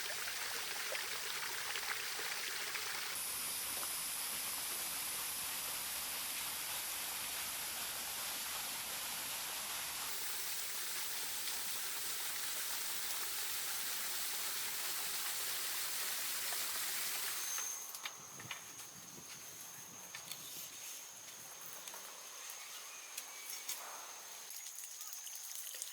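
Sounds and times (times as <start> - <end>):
falling water rushing: 0.0 - 3.2, 10.1 - 17.6
high steady insect tone: 0.3 - 3.2, 10.1 - 25.4.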